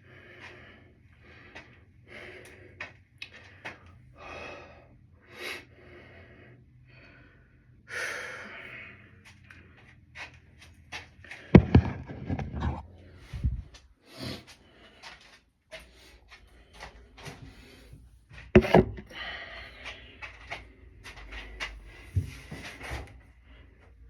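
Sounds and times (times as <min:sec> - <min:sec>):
person breathing heavily: 0:00.0 - 0:10.0, 0:11.2 - 0:18.3, 0:19.0 - 0:24.0
loud thump: 0:11.6 - 0:12.8.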